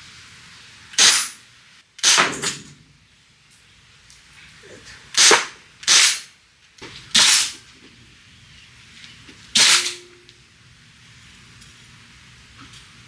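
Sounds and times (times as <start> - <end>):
gunshots: 5.2 - 6.3.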